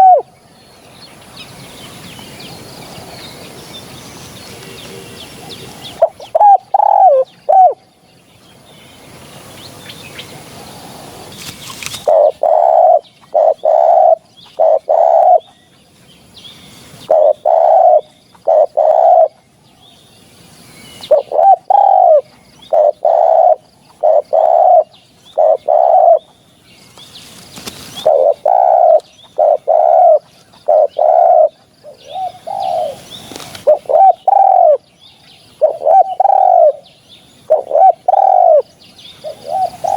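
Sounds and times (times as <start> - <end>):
dove cooing: 0.0 - 0.3, 4.5 - 7.9, 11.9 - 15.5, 17.0 - 19.4, 21.0 - 26.3, 27.9 - 34.8, 35.6 - 36.9, 37.5 - 39.9.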